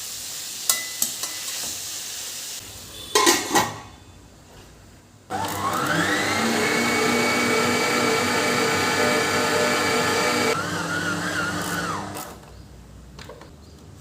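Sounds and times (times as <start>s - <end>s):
mixer grinder motor whine: 5.3s - 12.4s.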